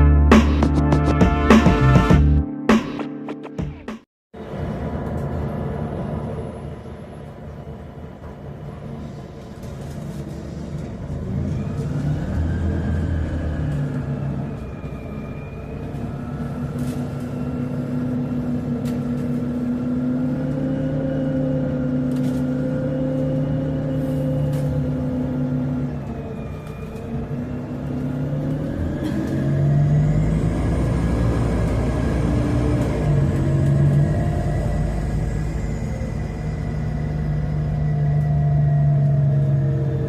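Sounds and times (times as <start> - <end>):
bus engine droning: 0.0 - 2.4, 4.4 - 40.0.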